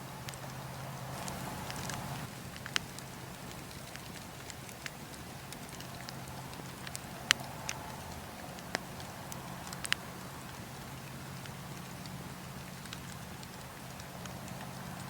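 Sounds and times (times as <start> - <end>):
burning logs popping: 0.0 - 15.0
campfire crackling: 0.0 - 15.0
low background noise: 0.0 - 15.0.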